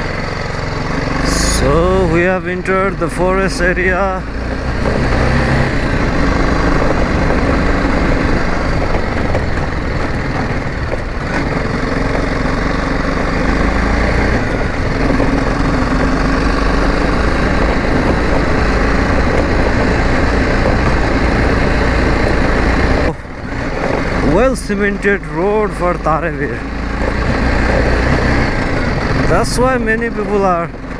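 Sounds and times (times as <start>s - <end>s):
motorcycle engine running: 0.0s - 30.9s
wind rumble on microphone: 4.6s - 11.3s.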